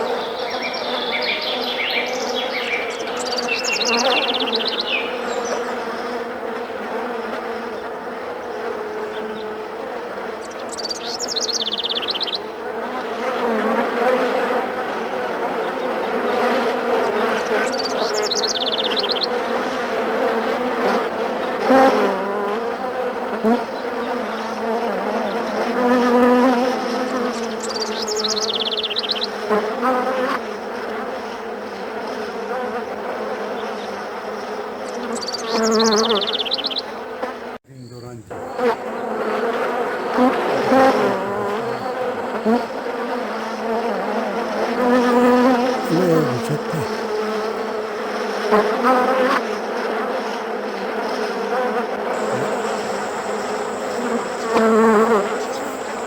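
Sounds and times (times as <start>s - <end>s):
bees buzzing: 0.0s - 30.8s, 35.0s - 56.0s.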